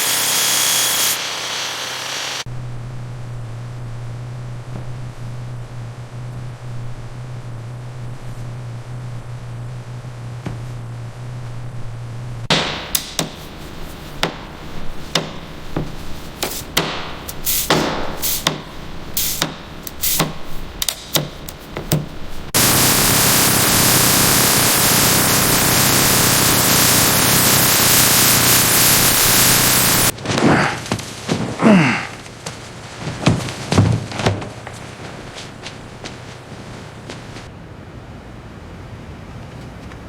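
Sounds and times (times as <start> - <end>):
loud steady hiss: 0.0 - 10.3, 12.3 - 30.2
hammer striking metal: 12.5 - 22.2.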